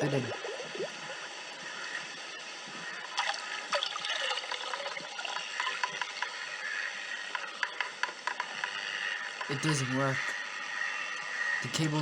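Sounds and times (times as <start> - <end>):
crackling clicks: 3.2 - 8.8.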